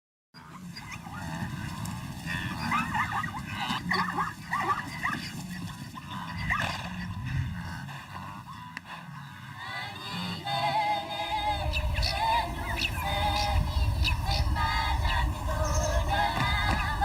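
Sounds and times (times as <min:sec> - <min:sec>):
animal yelps and whimpers: 0:02.3 - 0:07.2
steady low rumble: 0:05.9 - 0:08.2, 0:10.4 - 0:17.0.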